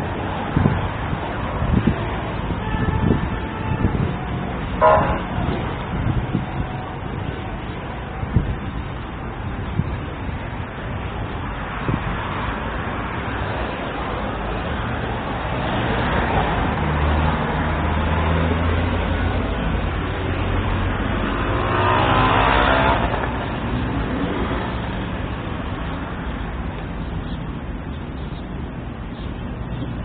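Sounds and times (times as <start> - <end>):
vehicle passing by: 11.7 - 26.7.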